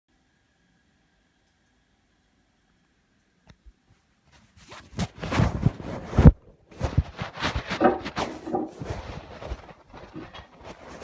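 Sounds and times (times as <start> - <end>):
ceramic lid scraping: 7.5 - 9.2.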